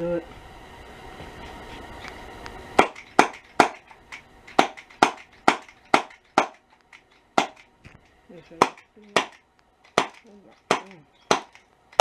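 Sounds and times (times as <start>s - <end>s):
air pistol shots: 2.8s - 6.6s, 7.4s - 7.7s, 8.6s - 12.0s.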